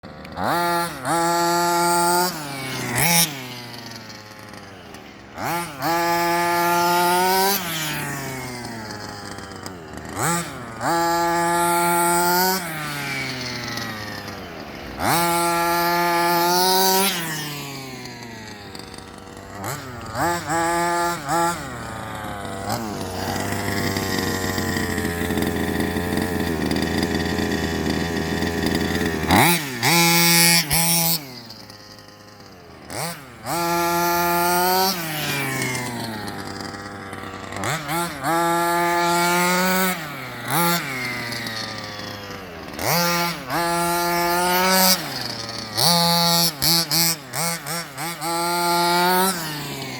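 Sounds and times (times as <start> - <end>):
two-stroke engine revving: 0.0 - 49.9.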